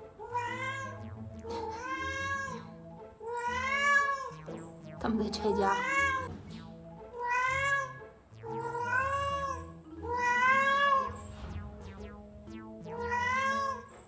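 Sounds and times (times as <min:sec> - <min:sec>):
cat meowing: 0:00.2 - 0:01.0, 0:01.6 - 0:02.6, 0:03.2 - 0:04.4, 0:05.6 - 0:06.3, 0:07.2 - 0:11.2, 0:12.9 - 0:14.0.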